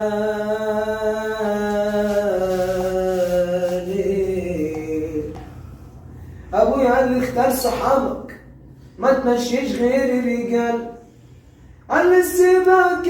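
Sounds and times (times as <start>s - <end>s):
man singing held notes: 0.0s - 5.6s.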